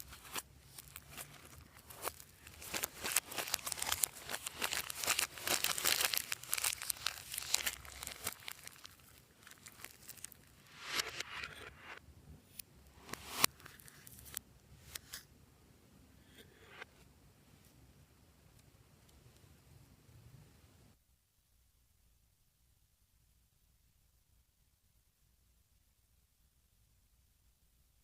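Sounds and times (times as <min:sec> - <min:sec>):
slime crackling and popping: 0:00.0 - 0:10.6.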